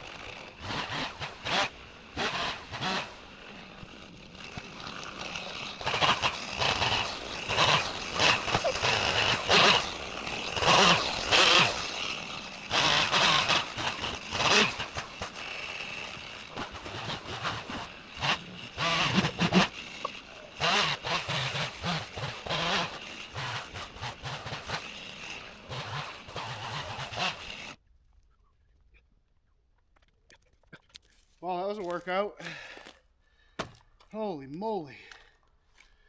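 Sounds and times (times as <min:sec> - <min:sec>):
chainsaw revving: 0:00.0 - 0:27.8.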